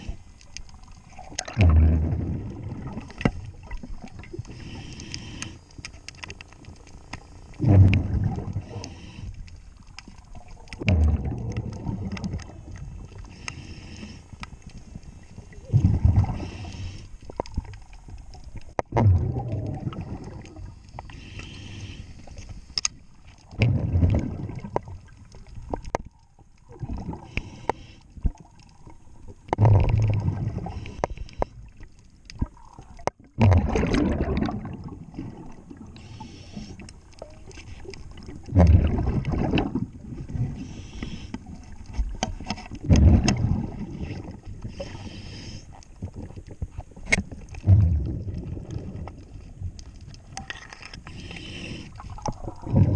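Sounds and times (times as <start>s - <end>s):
exhaust bubbles rumbling: 1.2s - 4.4s, 7.6s - 8.7s, 10.6s - 13.0s, 15.6s - 16.5s, 18.9s - 20.7s, 23.5s - 25.0s, 29.5s - 30.8s, 33.3s - 36.0s, 38.4s - 40.6s, 42.8s - 44.6s, 47.6s - 49.3s, 52.2s - 52.9s
regulator inhale hiss: 4.5s - 5.9s, 8.6s - 9.7s, 13.2s - 14.4s, 16.3s - 17.3s, 20.5s - 22.8s, 27.2s - 28.2s, 30.6s - 31.6s, 36.0s - 37.0s, 40.5s - 41.8s, 44.6s - 45.8s, 51.0s - 52.2s.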